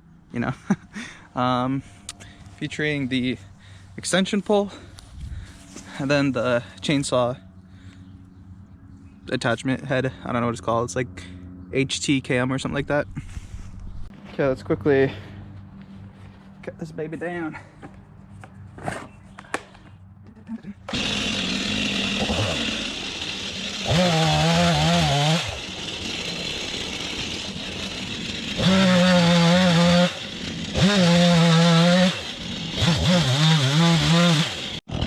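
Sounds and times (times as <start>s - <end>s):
chainsaw engine revving: 20.9s - 35.0s.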